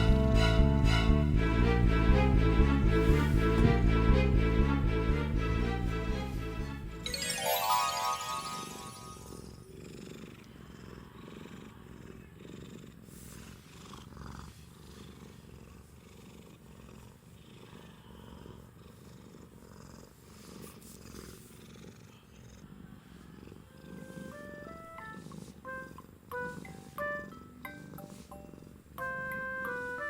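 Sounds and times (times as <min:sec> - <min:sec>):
cat purring: 0:00.0 - 0:04.6, 0:08.2 - 0:30.0
music: 0:00.0 - 0:09.5, 0:23.9 - 0:30.0.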